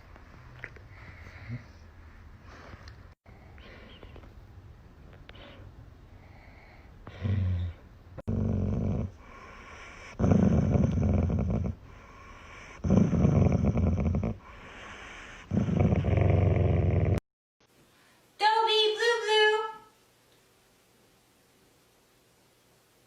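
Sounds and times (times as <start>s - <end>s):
dog making low rough sounds: 7.1s - 9.3s, 10.1s - 11.9s, 12.8s - 14.5s, 15.4s - 17.2s.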